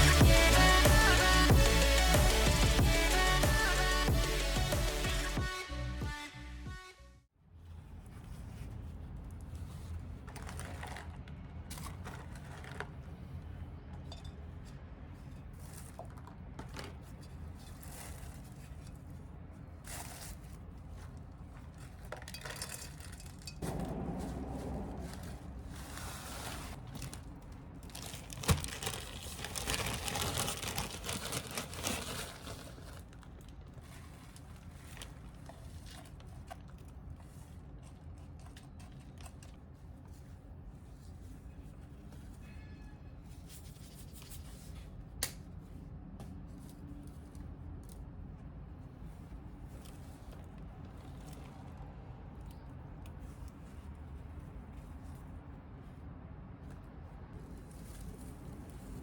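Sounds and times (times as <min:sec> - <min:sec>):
rustling and crinkling: 0:07.7 - 0:42.5, 0:43.2 - 0:59.0.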